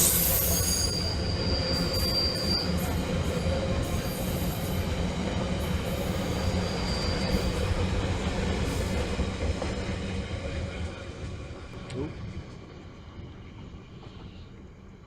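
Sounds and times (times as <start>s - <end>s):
high thin squeal: 0.0s - 3.0s
train rumbling: 0.0s - 15.0s.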